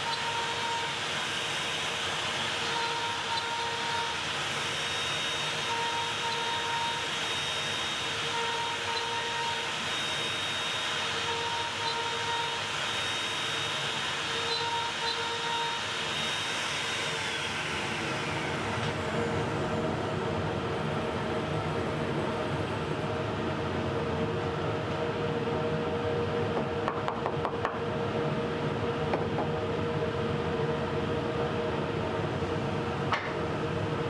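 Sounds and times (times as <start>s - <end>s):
router spinning with high whine: 0.0s - 26.4s.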